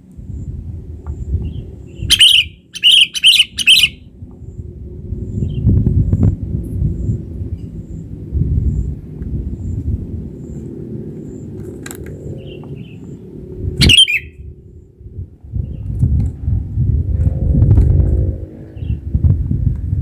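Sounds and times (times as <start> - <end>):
harsh bird call: 2.0 - 4.1, 13.8 - 14.4
low rumbling microphone noise: 3.9 - 20.0.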